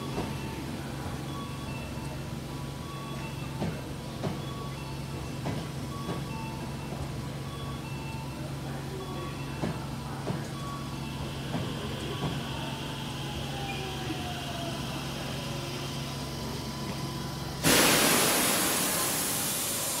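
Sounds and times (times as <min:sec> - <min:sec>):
train hum and motor whine: 0:00.0 - 0:20.0
air brake hiss: 0:17.6 - 0:20.0.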